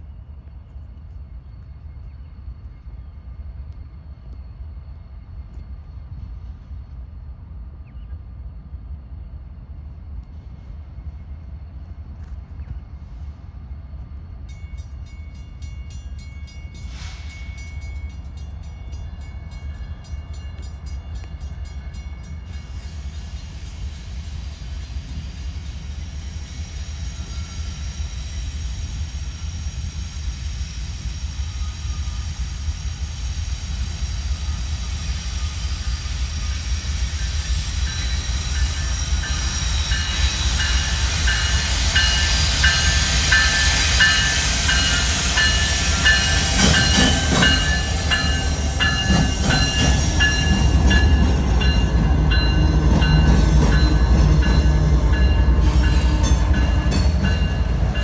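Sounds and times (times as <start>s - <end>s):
freight train rumbling: 0.0s - 58.0s
wheels clacking over rail joints: 38.0s - 58.0s.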